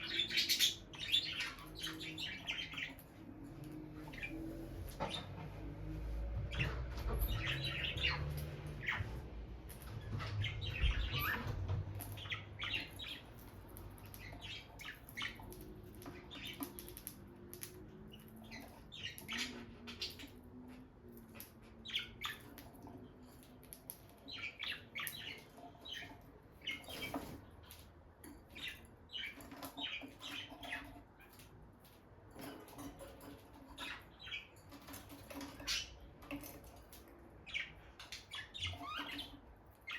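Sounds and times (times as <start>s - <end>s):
lovebirds chirping: 0.0s - 39.9s
low rumble of movement: 3.4s - 13.5s.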